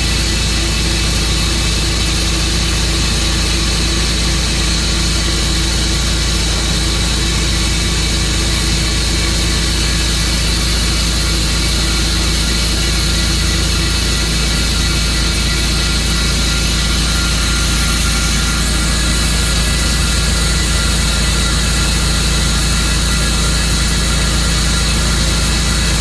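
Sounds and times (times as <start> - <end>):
sawmill hum and whine: 0.0 - 26.0.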